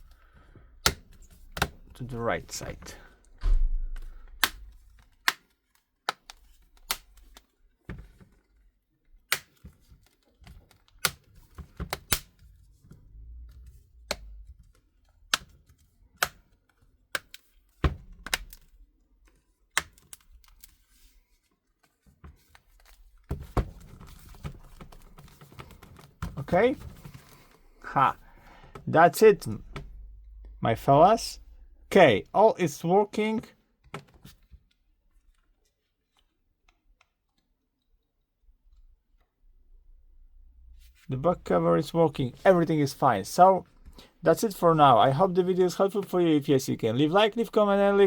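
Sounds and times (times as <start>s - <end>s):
plastic clicks and snaps: 3.9s - 7.5s, 18.1s - 20.7s.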